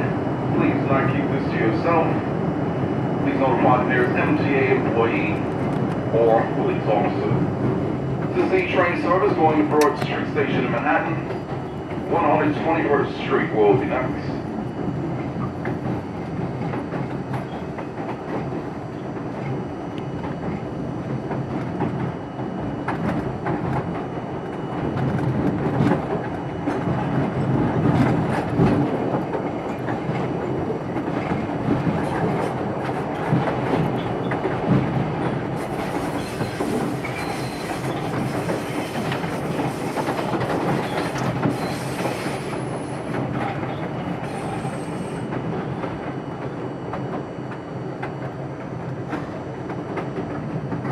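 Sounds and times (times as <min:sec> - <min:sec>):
subway train rumbling: 0:00.0 - 0:50.9
high-pitched wheel squeal: 0:36.1 - 0:39.0.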